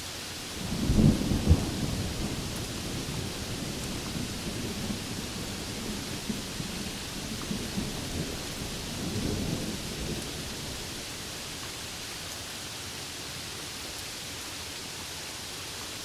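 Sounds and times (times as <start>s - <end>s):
rain hiss: 0.0s - 16.0s
rolling thunder: 0.6s - 12.0s.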